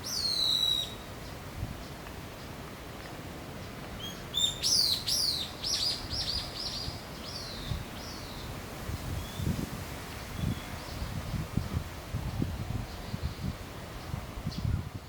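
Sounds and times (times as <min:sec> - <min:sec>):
small bird whistling song: 0:00.0 - 0:01.1, 0:04.0 - 0:08.5.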